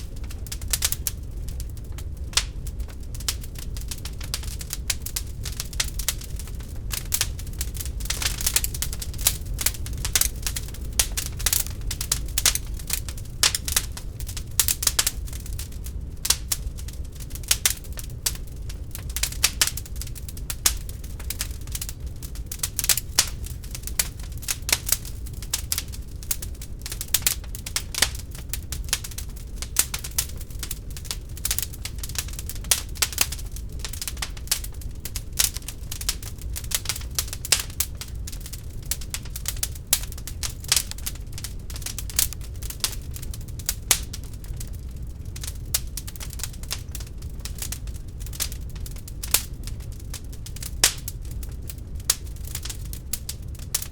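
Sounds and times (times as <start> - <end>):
low fire rumble: 0.0 - 53.9
wood fire crackling: 0.0 - 53.9.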